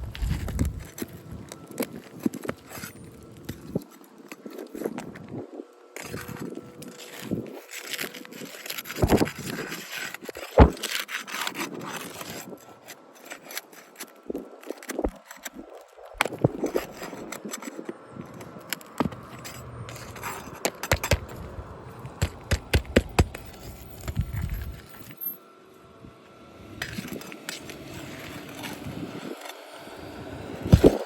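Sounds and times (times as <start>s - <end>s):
crowbar scraping shingles: 6.0s - 25.2s.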